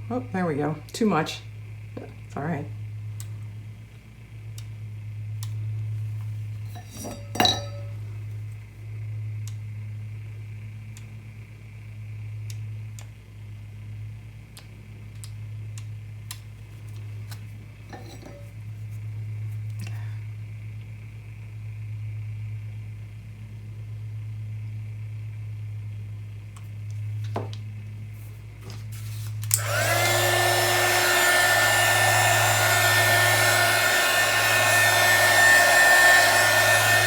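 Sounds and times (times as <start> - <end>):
glass bottles clinking: 6.8 - 8.0
motor humming: 29.5 - 37.0.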